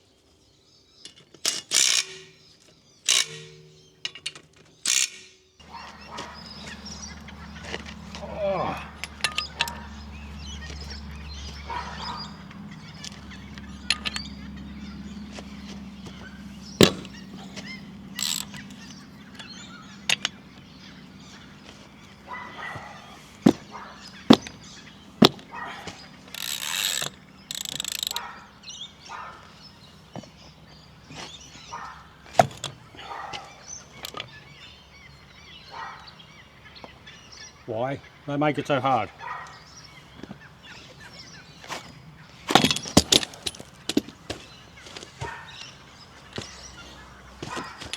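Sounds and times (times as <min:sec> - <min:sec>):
metal clicks and knocks: 0:08.8 - 0:22.2, 0:23.4 - 0:28.4, 0:32.3 - 0:32.8, 0:33.4 - 0:34.3, 0:42.5 - 0:44.3.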